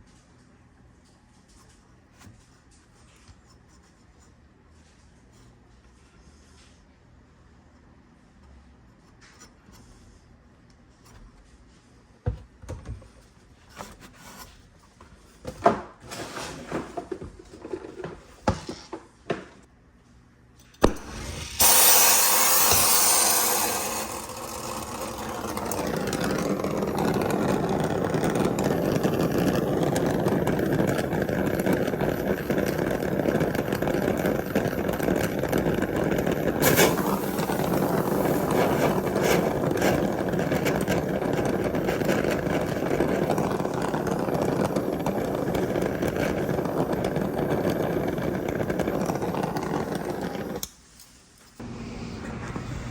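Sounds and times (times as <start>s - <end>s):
gas torch lighting: 20.7s - 50.8s
torch flame rushing: 20.8s - 50.7s.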